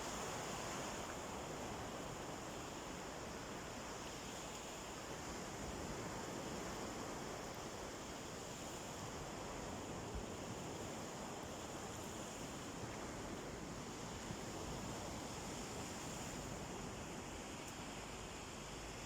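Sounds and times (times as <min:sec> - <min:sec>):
wind: 0:00.0 - 0:19.0.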